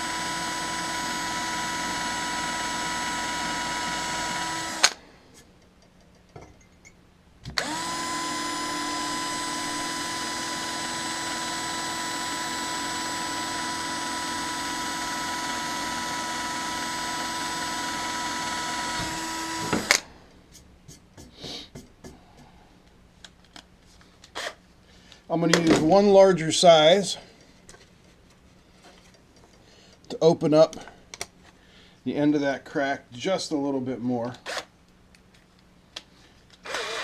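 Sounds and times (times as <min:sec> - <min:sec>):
electric drill whining: 0:00.0 - 0:05.1, 0:07.5 - 0:20.1, 0:36.6 - 0:37.0.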